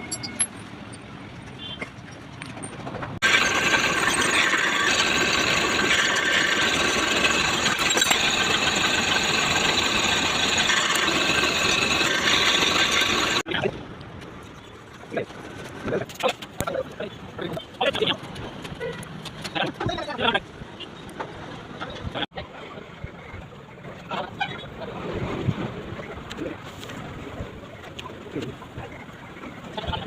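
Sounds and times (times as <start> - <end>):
ringing high tones: 0.0 - 1.0
lathe whirring: 3.2 - 13.4.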